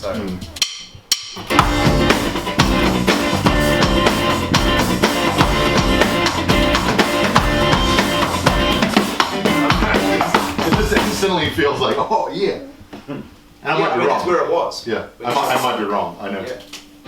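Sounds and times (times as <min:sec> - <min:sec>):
drum kit beat: 0:00.0 - 0:11.8
band playing: 0:01.4 - 0:11.5.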